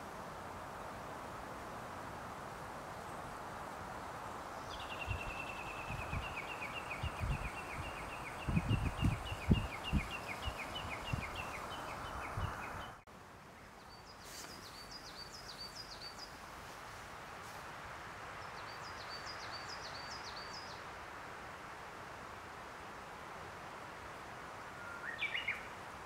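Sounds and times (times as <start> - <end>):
small birds calling: 4.6 - 13.0.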